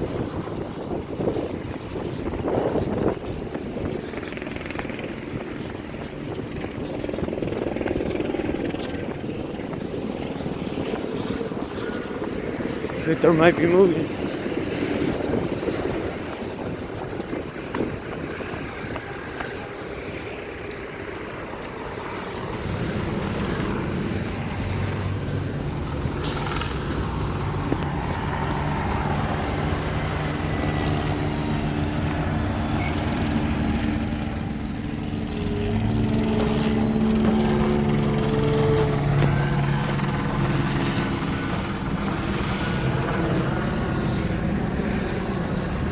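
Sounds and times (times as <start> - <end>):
street traffic: 0.0 - 45.9
truck engine humming: 21.0 - 45.9.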